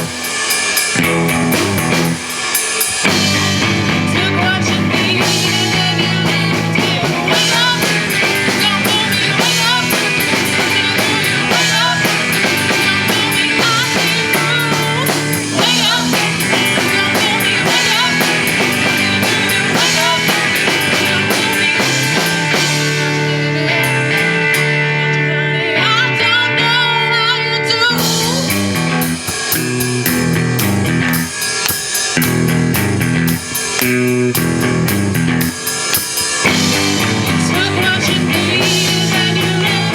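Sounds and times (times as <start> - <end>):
drum kit with cymbals: 0.0 - 25.1, 28.0 - 39.9
electric guitar: 0.0 - 39.9
bass notes: 1.0 - 2.3, 3.0 - 35.7, 36.4 - 39.9.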